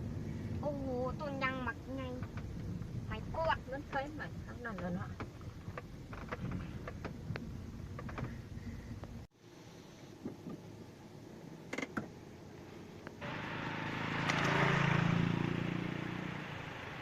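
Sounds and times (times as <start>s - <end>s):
vehicle passing by: 13.2s - 17.0s.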